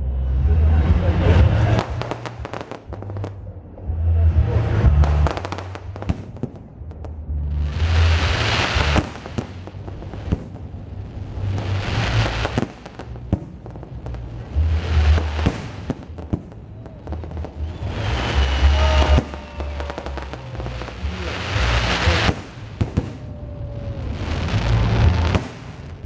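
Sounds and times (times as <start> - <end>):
fireworks bangs and crackling: 1.0 - 3.5, 4.4 - 26.0
firework whistling: 7.7 - 26.0.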